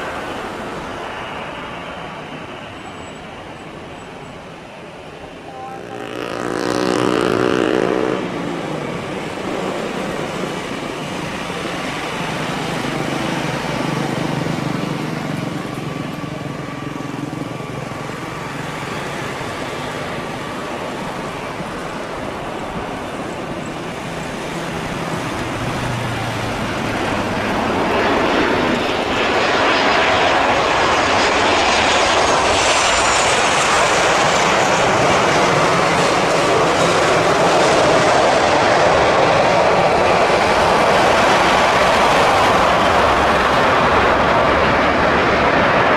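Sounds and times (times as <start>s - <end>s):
traffic noise: 0.0s - 29.2s, 33.8s - 45.9s
jet engine roar with whine: 0.0s - 45.9s
road vehicle passing: 5.7s - 10.5s, 23.9s - 27.9s.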